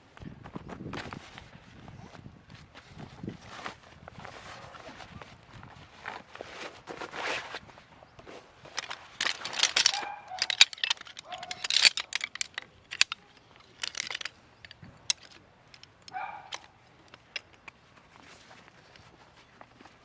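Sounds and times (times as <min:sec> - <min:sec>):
gear clicking and rustling: 0:08.2 - 0:20.0
ringing metallic clinks: 0:08.8 - 0:16.7.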